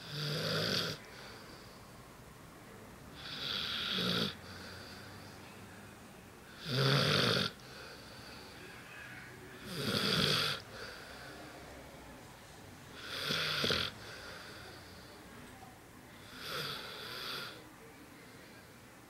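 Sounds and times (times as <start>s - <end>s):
dog snoring: 0.0s - 1.4s, 3.2s - 5.0s, 6.5s - 8.2s, 9.6s - 10.9s, 13.0s - 14.2s, 16.2s - 17.6s.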